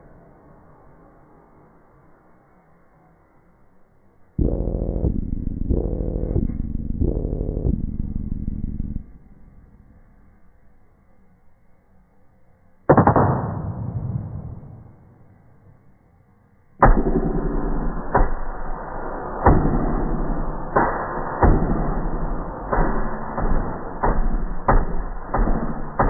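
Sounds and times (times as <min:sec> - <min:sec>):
low hum: 0:00.0 - 0:26.0
muffled heavy hits: 0:04.4 - 0:09.7, 0:16.8 - 0:26.0.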